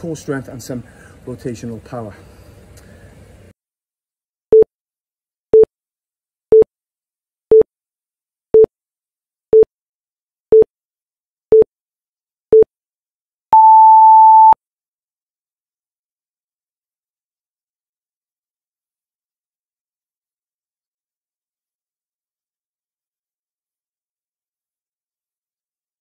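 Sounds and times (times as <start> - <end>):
longer higher timer beep: 13.6 - 14.6
short timer beeps: 13.6 - 14.6.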